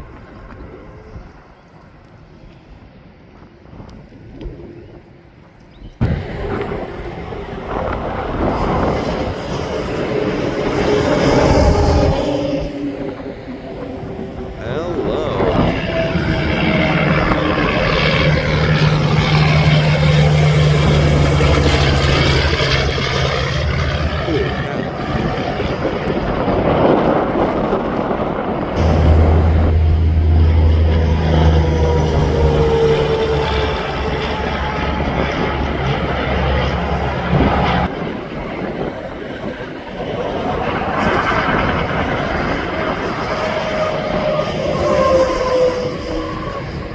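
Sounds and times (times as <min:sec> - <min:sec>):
tyre and road noise: 0:04.4 - 0:39.3
diesel truck engine drone: 0:06.0 - 0:38.1
passing vehicles rushing: 0:06.0 - 0:46.9.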